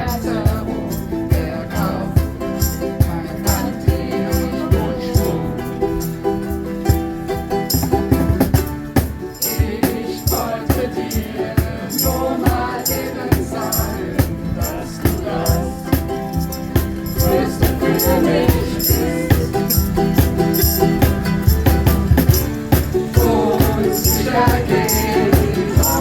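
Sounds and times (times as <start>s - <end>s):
voices singing along: 0.0s - 6.6s, 8.4s - 26.0s
shaker rattling: 0.0s - 26.0s
ukuleles strummed: 0.0s - 26.0s.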